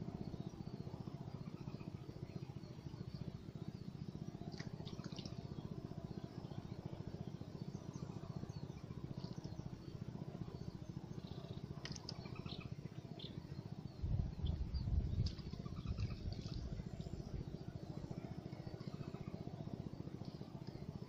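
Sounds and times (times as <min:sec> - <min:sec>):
faint bird chirps: 0:00.0 - 0:21.0
low rumble: 0:14.0 - 0:17.4.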